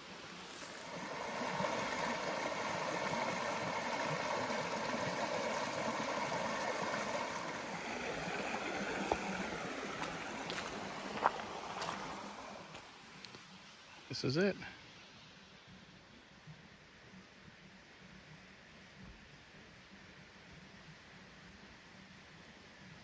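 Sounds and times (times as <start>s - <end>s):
water splashing over rocks: 0.0s - 12.9s.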